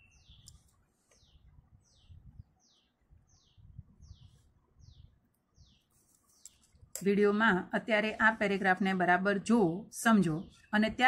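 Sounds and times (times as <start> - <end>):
faint bird chirping: 0.0 - 7.0, 9.6 - 11.0.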